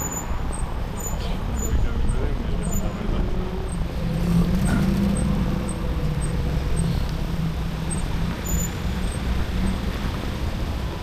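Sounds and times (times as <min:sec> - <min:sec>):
traffic: 0:00.0 - 0:11.0
wind and road noise: 0:00.0 - 0:11.0.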